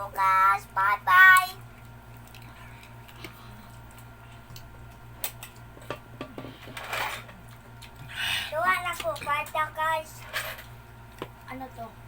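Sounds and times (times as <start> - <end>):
steady low hum: 0.0 - 12.0
small clicks and taps of eating: 1.3 - 6.4, 8.9 - 9.6, 10.6 - 11.5.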